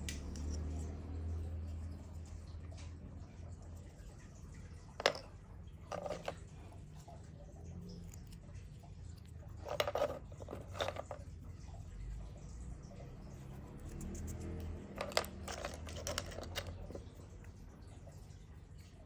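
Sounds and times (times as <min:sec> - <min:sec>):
low steady hum: 0:00.0 - 0:19.0
wood pieces knocking and rattling: 0:05.0 - 0:06.4, 0:09.6 - 0:11.2, 0:15.0 - 0:17.1.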